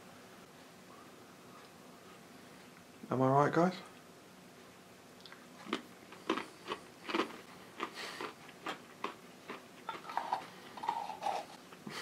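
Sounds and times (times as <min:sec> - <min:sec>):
crunching on a pretzel: 0:05.2 - 0:11.6.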